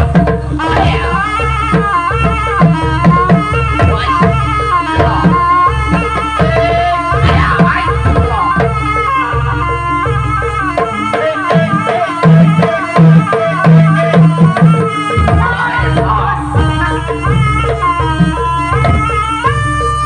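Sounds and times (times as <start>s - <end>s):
bending folk melody: 0.0s - 20.0s
hand drums beating: 0.0s - 20.0s
loud low tones: 0.5s - 1.7s, 14.0s - 18.2s.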